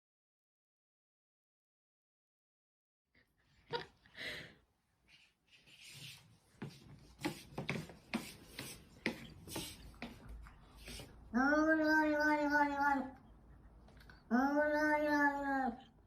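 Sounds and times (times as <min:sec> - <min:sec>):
scratchy rubbing and clicking: 0:05.5 - 0:11.1.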